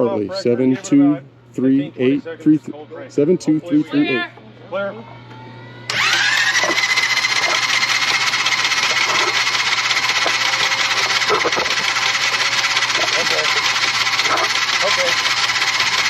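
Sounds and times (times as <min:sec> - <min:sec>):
starter motor whine: 0:05.9 - 0:16.0
propeller turning rattle: 0:06.2 - 0:16.0.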